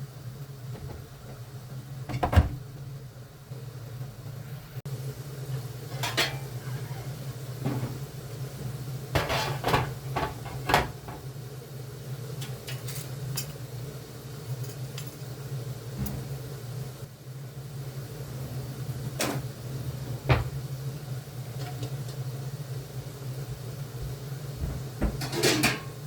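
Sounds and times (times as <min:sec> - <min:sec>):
steady low hum: 0:00.0 - 0:25.3
dishes and cutlery clinking: 0:05.9 - 0:06.5, 0:25.2 - 0:26.0.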